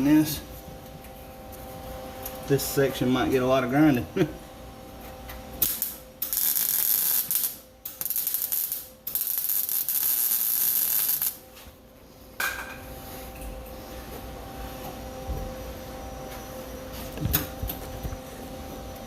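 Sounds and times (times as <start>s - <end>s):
electric welding arc noise: 5.5s - 11.6s.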